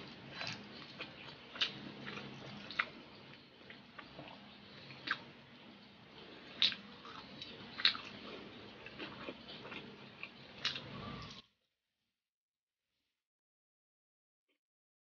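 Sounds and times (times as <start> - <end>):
chewing with wet mouth clicks: 0.3 - 5.3, 6.5 - 10.9.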